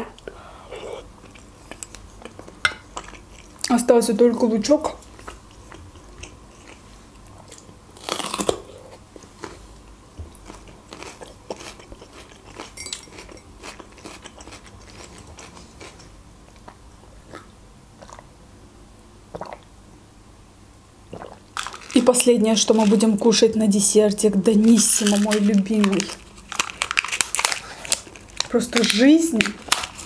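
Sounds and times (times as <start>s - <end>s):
crunchy chewing: 5.0s - 18.2s, 24.6s - 30.0s
wet mouth clicks: 19.3s - 19.7s.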